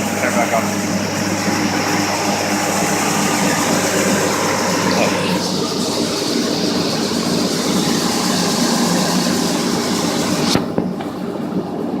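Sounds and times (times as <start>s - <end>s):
tractor and combine engine drone: 0.0s - 12.0s.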